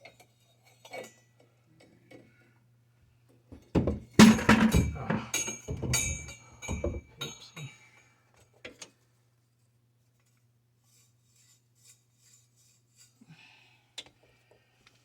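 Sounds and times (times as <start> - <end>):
metal pipe fittings clinking: 4.2 - 7.8.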